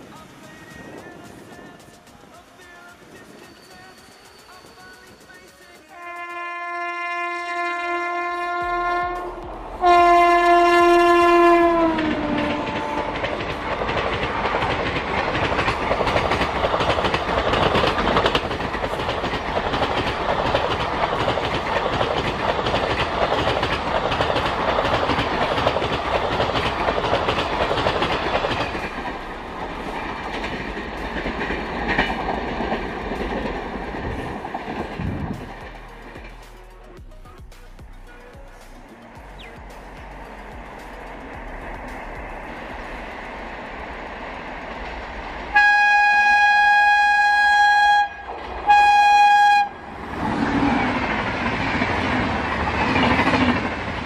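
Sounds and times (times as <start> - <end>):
train wheels clattering on rails: 0.0 - 36.5, 38.9 - 54.0
locomotive horn blasts: 5.9 - 13.6, 45.5 - 49.8.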